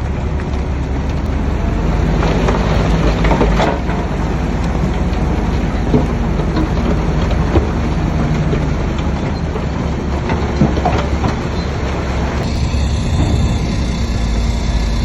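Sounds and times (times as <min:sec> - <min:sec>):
bulldozer diesel engine: 0:00.0 - 0:15.0
steel tracks clanking: 0:00.0 - 0:15.0
sharp metallic knocks: 0:12.4 - 0:15.0.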